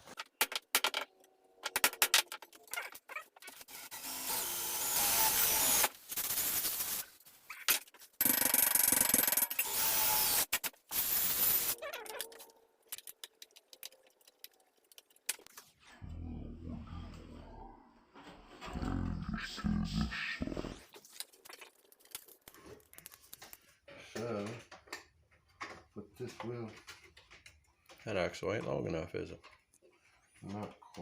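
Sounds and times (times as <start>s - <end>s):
power tool cutting sheet steel: 3.6s - 7.0s, 9.5s - 11.8s.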